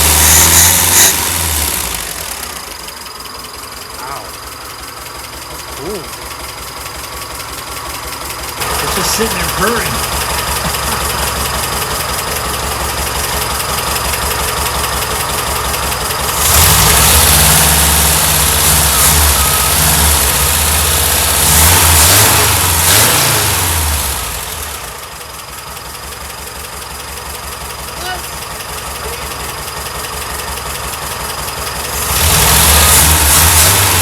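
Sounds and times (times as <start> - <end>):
car engine idling and revving: 0.0 - 34.0.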